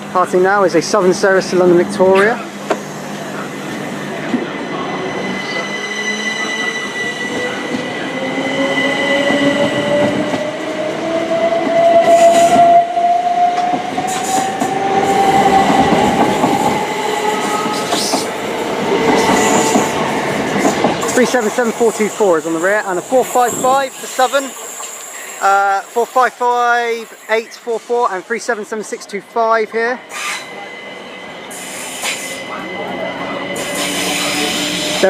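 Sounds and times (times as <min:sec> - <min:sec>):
train wheels clattering on rails: 0:13.5 - 0:22.2.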